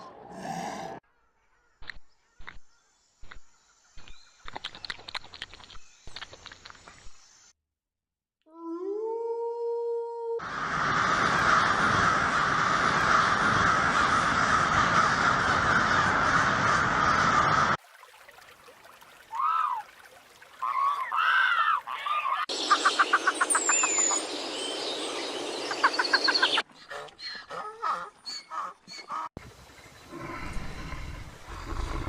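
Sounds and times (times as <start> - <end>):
harsh bird calls: 20.6 - 29.3
birds chorus: 20.6 - 32.0
birds chattering and whistling: 21.8 - 27.6.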